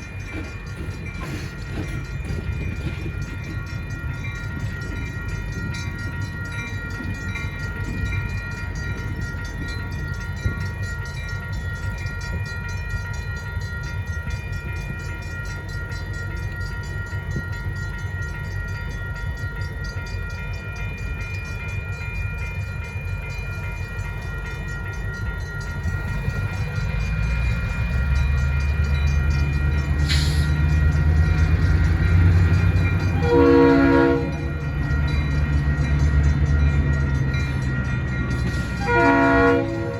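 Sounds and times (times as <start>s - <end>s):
crossing bell ringing: 0.0s - 39.9s
diesel locomotive engine: 0.0s - 39.9s
train horn blast: 33.1s - 34.6s, 38.8s - 39.9s.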